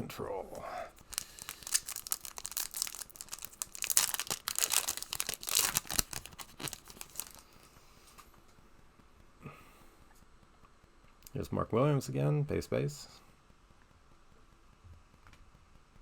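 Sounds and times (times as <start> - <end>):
plastic wrapper crinkling: 0.9 - 7.7.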